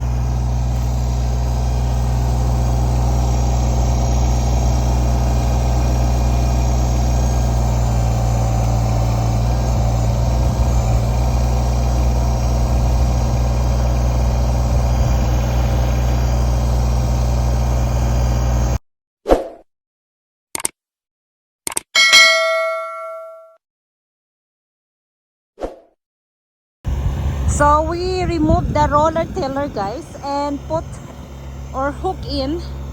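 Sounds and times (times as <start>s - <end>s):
tractor engine running: 0.0s - 18.8s, 26.9s - 32.9s.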